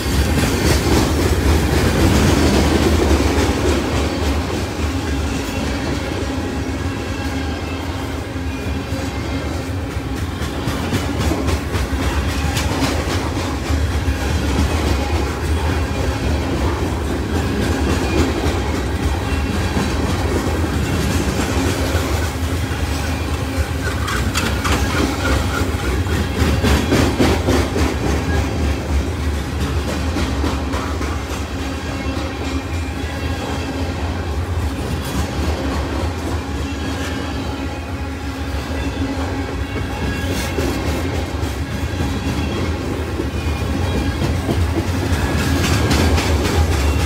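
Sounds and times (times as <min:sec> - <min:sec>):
freight train rumbling past: 0:00.0 - 0:47.0
wheels clicking over rail joints: 0:09.7 - 0:32.8, 0:39.6 - 0:47.0.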